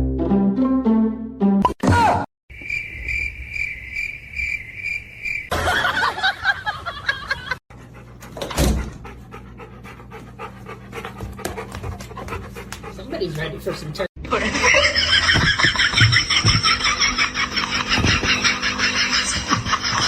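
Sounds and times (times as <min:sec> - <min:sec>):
dog panting: 0:07.7 - 0:14.1.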